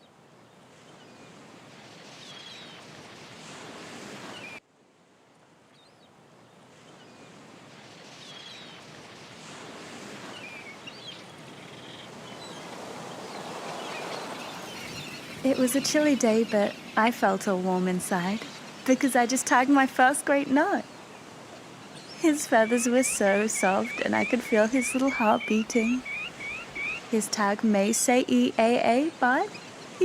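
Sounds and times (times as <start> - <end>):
birds chirping: 10.4 - 30.0.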